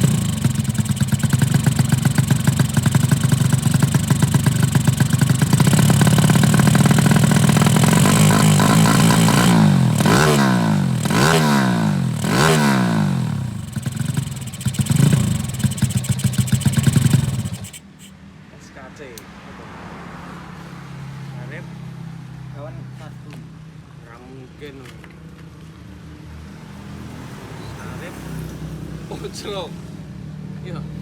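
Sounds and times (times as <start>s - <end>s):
motorcycle engine revving: 0.0s - 18.1s.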